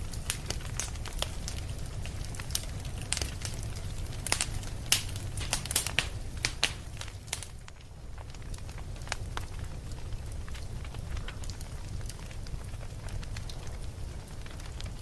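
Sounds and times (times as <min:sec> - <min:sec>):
fire low rumble: 0:00.0 - 0:15.0
wood fire crackling: 0:00.0 - 0:15.0.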